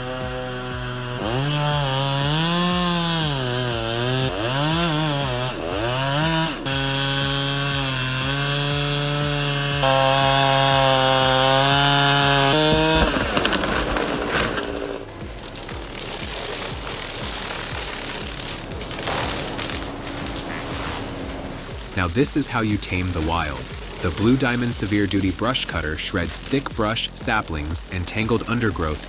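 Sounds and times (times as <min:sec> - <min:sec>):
chainsaw running: 0:00.0 - 0:29.0
noisy crackle: 0:09.4 - 0:29.0.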